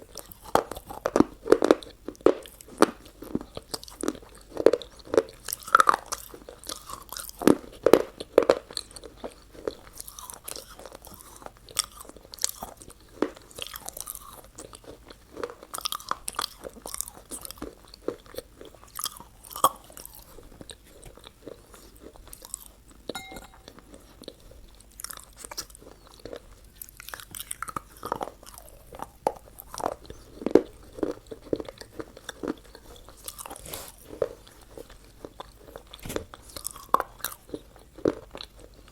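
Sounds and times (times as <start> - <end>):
crunchy chewing: 0.0 - 38.9.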